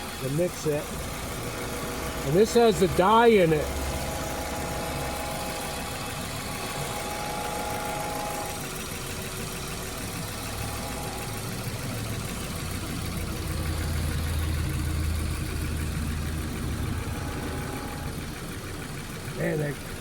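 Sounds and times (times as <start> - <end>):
air conditioning compressor hum: 0.0 - 9.0, 13.2 - 18.8
car engine idling: 0.0 - 20.0.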